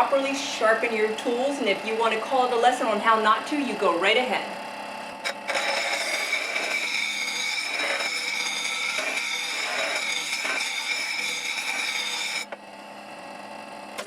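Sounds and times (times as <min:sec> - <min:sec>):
electric grinder whining: 0:04.4 - 0:13.6
steel grinding on wheel: 0:05.2 - 0:12.5.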